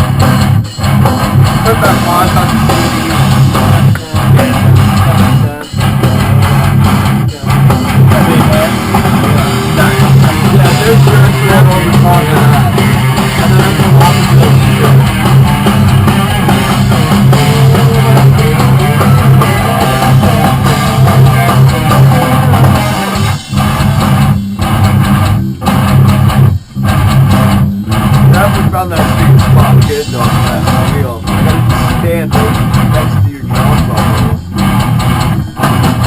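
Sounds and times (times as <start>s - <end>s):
rock band playing guitar riff: 0.0s - 36.0s.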